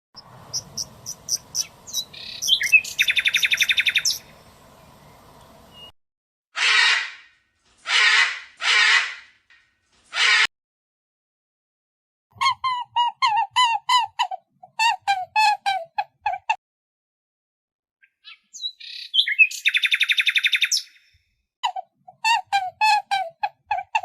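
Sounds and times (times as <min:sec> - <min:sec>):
songbird chirping and trilling: 0:00.2 - 0:05.9, 0:18.0 - 0:21.2.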